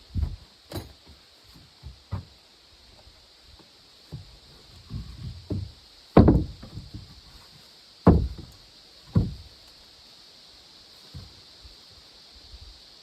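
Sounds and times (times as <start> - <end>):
heavy blows on wood: 4.1 - 7.2, 8.1 - 9.5.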